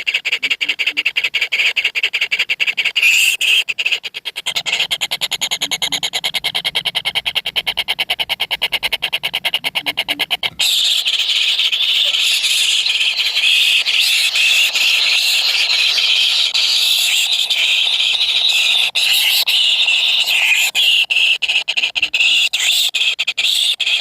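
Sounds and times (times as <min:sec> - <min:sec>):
nestlings calling: 0:00.0 - 0:24.0
high-pitched squealing chorus: 0:10.6 - 0:21.4.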